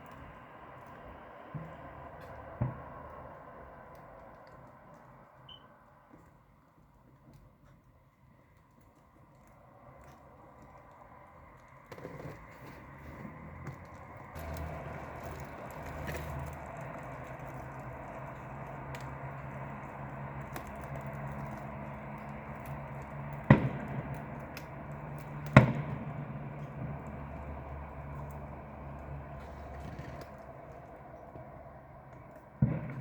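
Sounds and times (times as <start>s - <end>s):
firework bangs: 14.3s - 30.6s, 32.5s - 33.0s.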